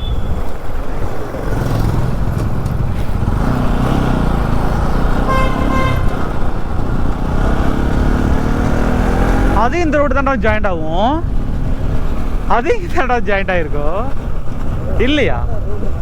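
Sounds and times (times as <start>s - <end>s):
vehicle horn honk: 0.0s - 0.5s, 5.1s - 6.5s
motorcycle engine running: 0.0s - 16.0s.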